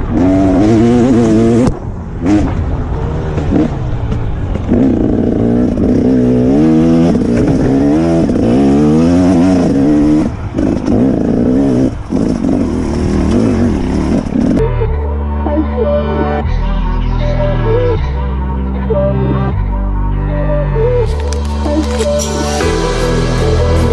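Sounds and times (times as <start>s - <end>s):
dirt bike engine revving: 0.0s - 14.6s.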